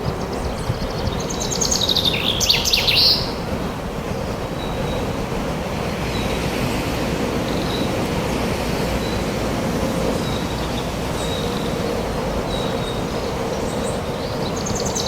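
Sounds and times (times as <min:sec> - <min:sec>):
wind blowing: 0:00.0 - 0:15.0.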